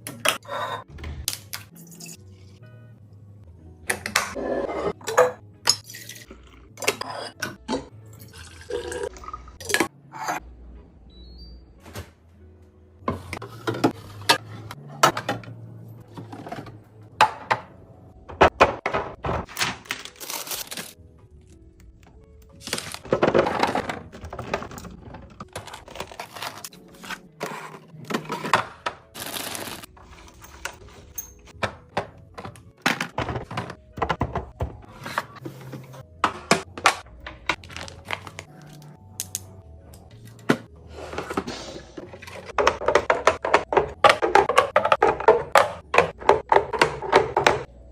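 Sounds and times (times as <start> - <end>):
soft background music: 0.0 - 47.9
containers clicking and knocking: 41.3 - 47.7.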